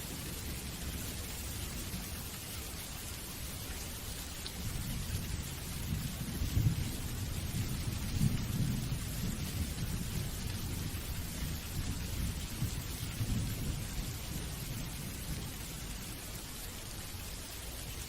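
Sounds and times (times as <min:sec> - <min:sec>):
rain hissing: 0:00.0 - 0:18.0
rumble of thunder: 0:04.6 - 0:16.3.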